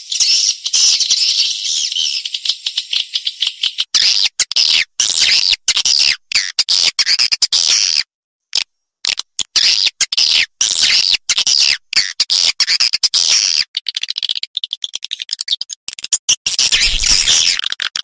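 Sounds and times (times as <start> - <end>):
swiftlets twittering and chirping: 16.6 - 17.6.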